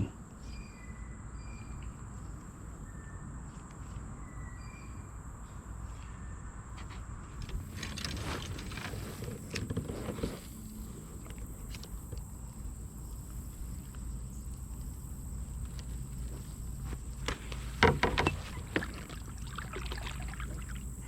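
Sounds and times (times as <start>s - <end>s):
low outdoor rumble: 5.3s - 21.0s
knocks and scrapes in kayak: 7.4s - 11.9s, 15.9s - 20.8s.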